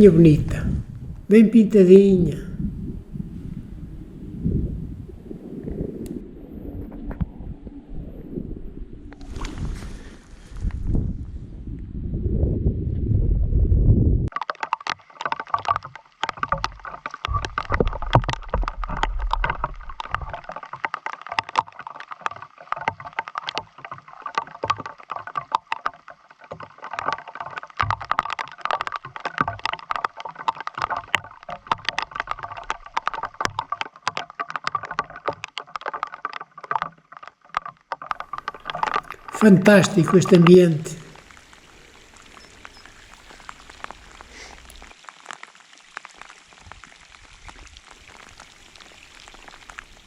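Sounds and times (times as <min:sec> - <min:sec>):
wind gusting against microphone: 0:00.0 - 0:01.4, 0:02.2 - 0:14.3
water clicks and splashes: 0:14.3 - 0:50.0.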